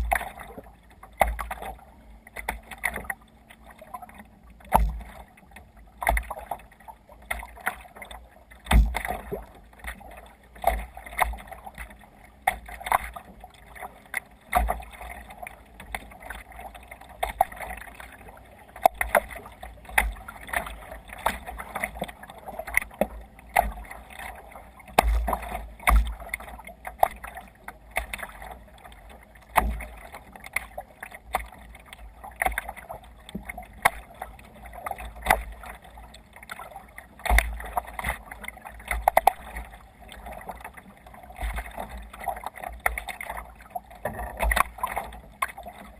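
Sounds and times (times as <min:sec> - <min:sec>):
water slapping against kayak hull: 0:00.0 - 0:45.9
sharp knocks and low thuds: 0:08.7 - 0:09.0.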